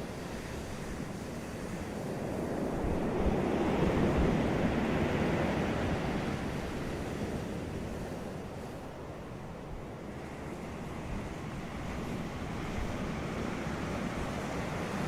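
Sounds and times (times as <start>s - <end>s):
ocean waves breaking: 0.0s - 15.0s.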